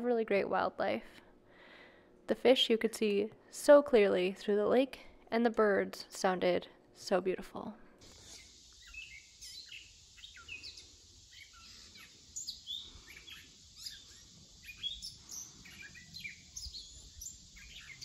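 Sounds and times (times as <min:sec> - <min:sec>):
faint hiss: 0:08.0 - 0:18.0
songbirds chirping: 0:08.0 - 0:18.0.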